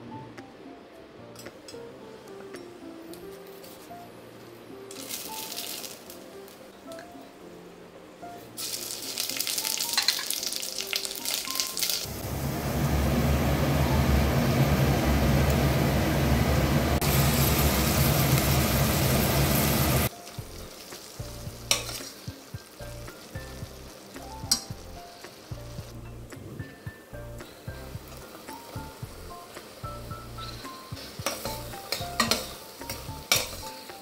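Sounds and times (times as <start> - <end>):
onions sizzling: 4.8 - 7.2, 8.4 - 34.0
spices crackling in hot oil: 4.9 - 7.0, 8.5 - 12.8, 17.0 - 26.3, 27.3 - 34.0.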